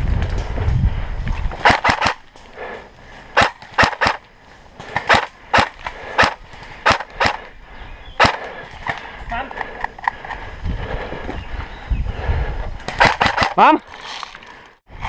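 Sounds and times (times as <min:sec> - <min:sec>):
airsoft gun shots: 0:01.6 - 0:02.2, 0:03.4 - 0:04.2, 0:04.9 - 0:07.5, 0:08.2 - 0:08.6, 0:12.9 - 0:13.7.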